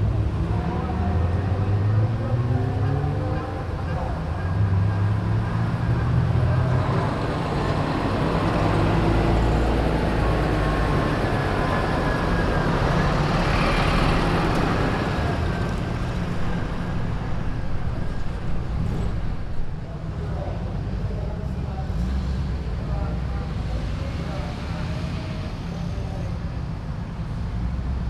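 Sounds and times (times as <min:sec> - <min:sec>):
car engines and exhausts: 0:00.0 - 0:28.0.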